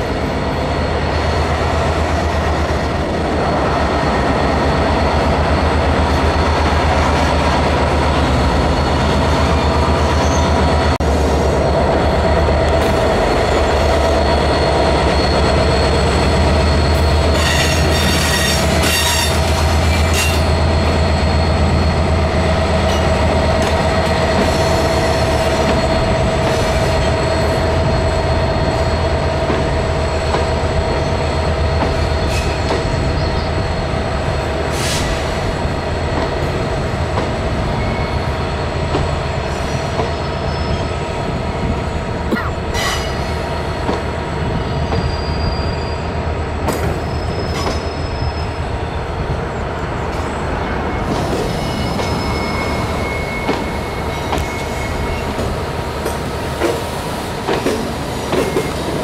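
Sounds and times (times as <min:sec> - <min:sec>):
train wheels rumbling on rails: 0:00.0 - 0:59.0
high wheel squeal: 0:13.8 - 0:23.5, 0:37.6 - 0:38.8, 0:39.4 - 0:41.1, 0:44.4 - 0:49.0, 0:50.3 - 0:55.6.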